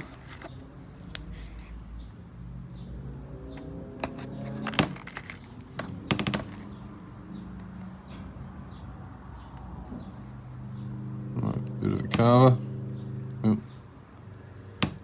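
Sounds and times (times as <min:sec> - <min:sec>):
steady low hum: 0:05.5 - 0:15.0.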